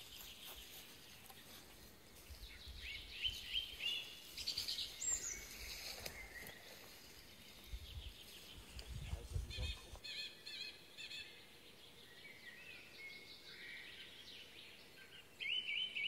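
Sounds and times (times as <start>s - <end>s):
songbird chirps and whistles: 15.0s - 16.0s.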